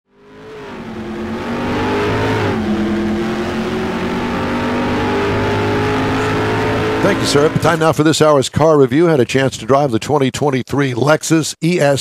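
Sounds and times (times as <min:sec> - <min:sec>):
car engine accelerating: 0:00.1 - 0:07.9.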